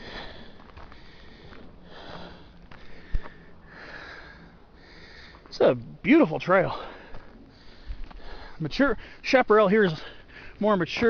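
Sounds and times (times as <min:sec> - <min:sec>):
person breathing close to microphone: 0:00.0 - 0:05.5, 0:06.8 - 0:09.2.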